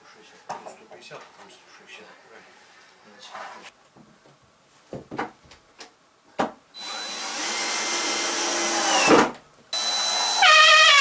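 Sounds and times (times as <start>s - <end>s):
power drill running: 6.8s - 9.2s, 9.8s - 11.0s.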